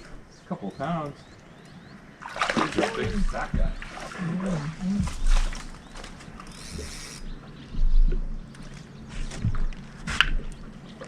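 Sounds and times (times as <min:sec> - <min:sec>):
dull thumps on boat hull: 0:02.7 - 0:04.0
fishing gear clicks and rattles: 0:05.1 - 0:11.0.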